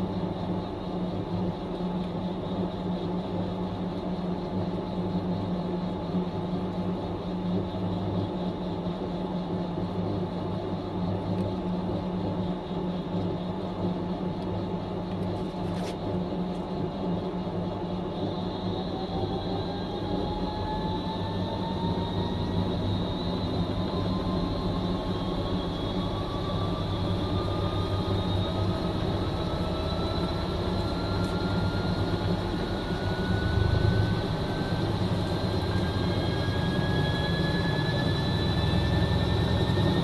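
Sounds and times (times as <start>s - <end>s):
washing machine motor whine: 16.0s - 40.0s
low hum: 18.3s - 40.0s.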